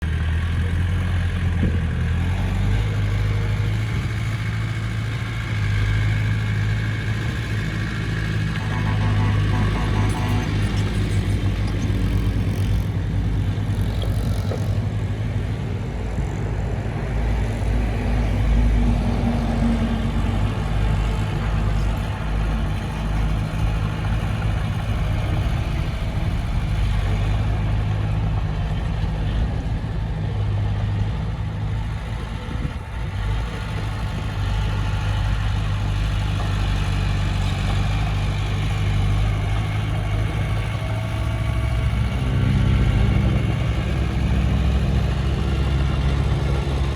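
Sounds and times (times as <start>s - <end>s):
heavy diesel engine droning: 0.0s - 46.9s.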